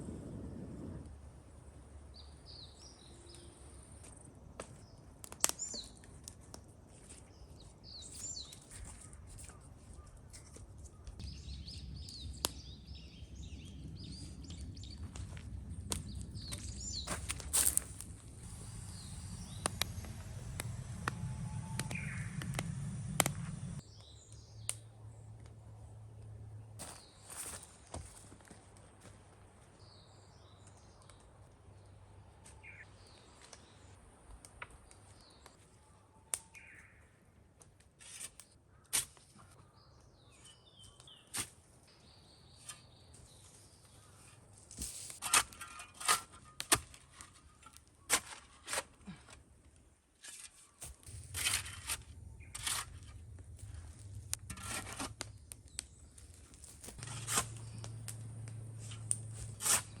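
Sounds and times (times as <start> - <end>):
birds chirping: 18.5 - 25.3
dry wood cracking: 44.8 - 60.0.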